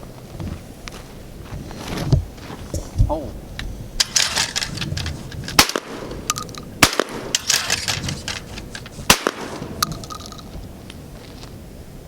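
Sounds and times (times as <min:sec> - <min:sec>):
smaller sharp cracks: 0:04.0 - 0:10.4
loud gunshots: 0:05.6 - 0:09.9.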